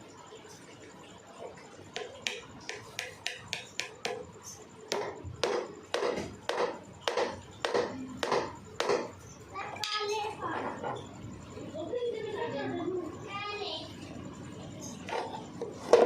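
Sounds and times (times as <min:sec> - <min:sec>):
sharp knocks: 0:04.9 - 0:09.2.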